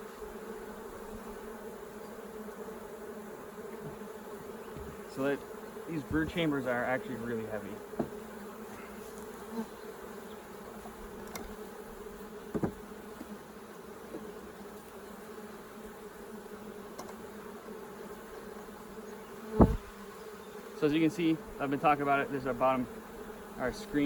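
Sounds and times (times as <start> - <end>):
honey bees humming: 0.0 - 24.0
thump: 4.7 - 5.0, 8.0 - 8.2, 12.5 - 13.3, 19.5 - 19.9
short knock: 19.6 - 19.9.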